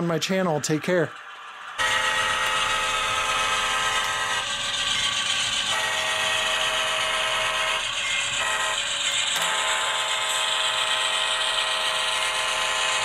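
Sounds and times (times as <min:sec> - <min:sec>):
locomotive engine sound: 0:00.0 - 0:13.0
diesel horn sounding: 0:05.7 - 0:07.8, 0:08.4 - 0:11.0.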